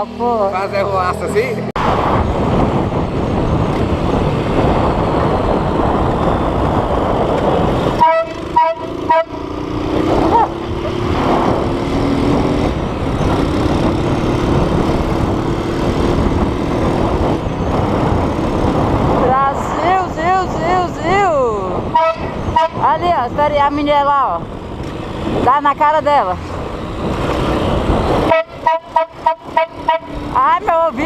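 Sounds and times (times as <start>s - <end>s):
loud driving noise: 0.0s - 31.0s
car air horn toots: 8.0s - 9.4s, 21.9s - 22.8s, 28.2s - 30.2s
long low steady horn tone: 8.0s - 9.5s, 21.9s - 22.8s, 28.2s - 30.3s.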